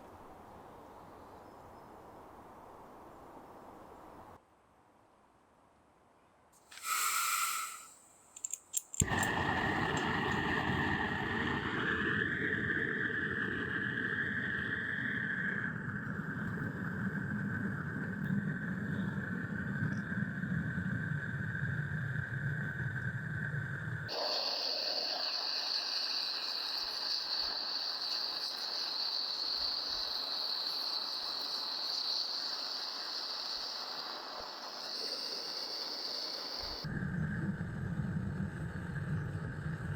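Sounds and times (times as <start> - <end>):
gas burner hissing and whistling: 6.7 - 39.9
gas burner ignition clicks: 6.8 - 10.6
low burner rumble: 9.0 - 39.9.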